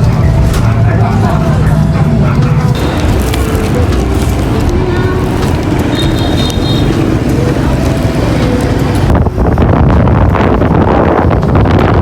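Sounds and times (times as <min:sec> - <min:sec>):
outdoor traffic noise: 0:00.0 - 0:12.0
wind rumble on microphone: 0:02.7 - 0:12.0.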